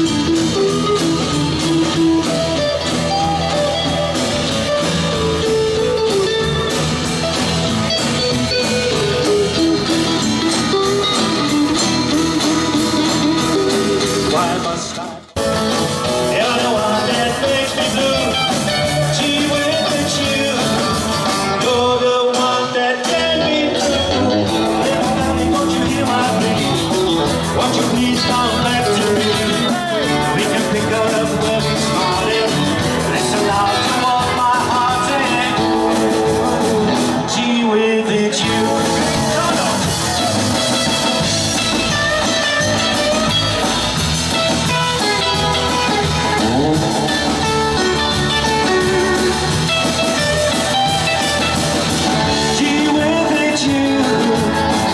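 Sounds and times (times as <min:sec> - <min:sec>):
electric guitar: 0:00.0 - 0:54.9
rock band playing live: 0:00.0 - 0:54.9.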